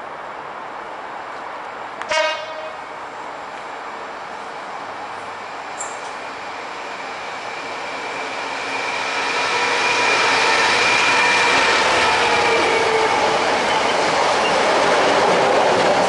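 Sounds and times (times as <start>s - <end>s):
diesel locomotive passing: 0.1s - 16.0s.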